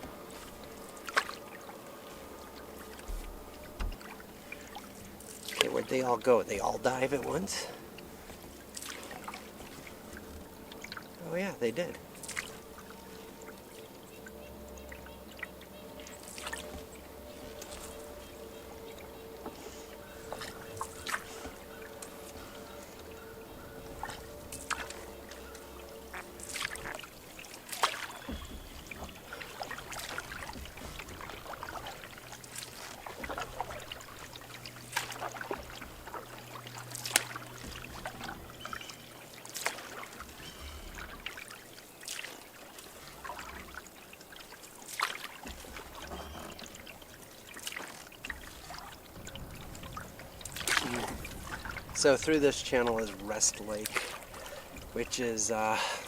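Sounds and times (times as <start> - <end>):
paddle splashing in water: 0.0 - 56.0
water dripping: 0.0 - 56.0.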